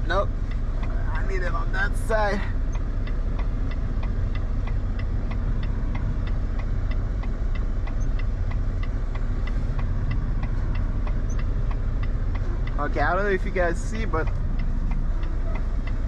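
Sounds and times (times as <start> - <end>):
diesel truck engine low revs: 0.0 - 16.0
regular ticking: 0.0 - 16.0.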